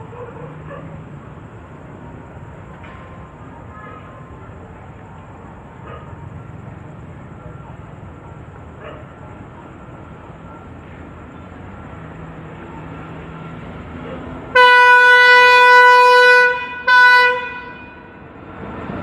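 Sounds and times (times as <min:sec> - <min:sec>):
train rumble: 0:00.0 - 0:19.0
locomotive horn blasts: 0:14.5 - 0:18.2.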